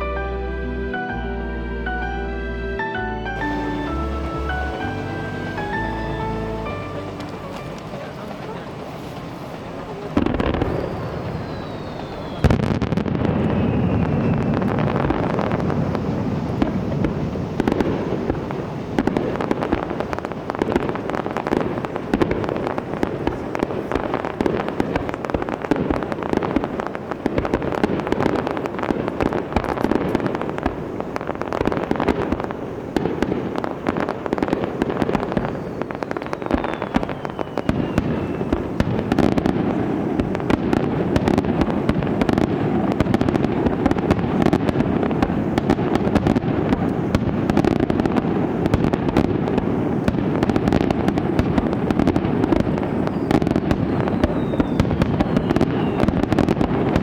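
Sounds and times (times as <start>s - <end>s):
fireworks bangs and crackling: 3.4s - 57.0s
falling whistle: 10.6s - 15.8s, 35.3s - 38.8s, 53.0s - 56.2s.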